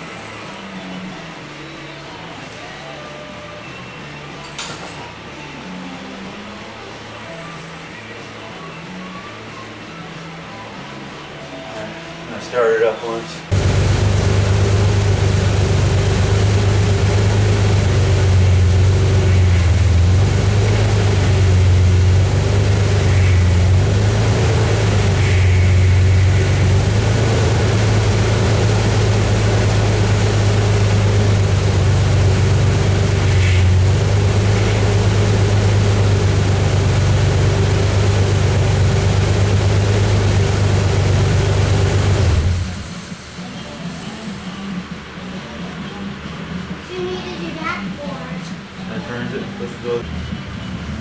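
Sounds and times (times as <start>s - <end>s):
car engine idling: 13.5s - 43.6s.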